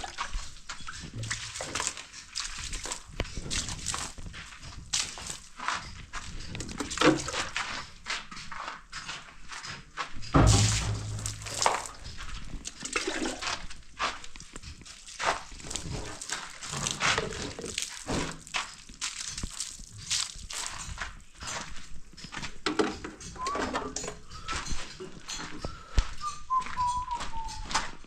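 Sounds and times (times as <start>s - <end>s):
water sloshing and splashing: 0.0s - 5.7s, 6.6s - 7.8s, 10.4s - 21.1s
heavy thump: 10.4s - 12.0s
knocks: 10.4s - 12.0s.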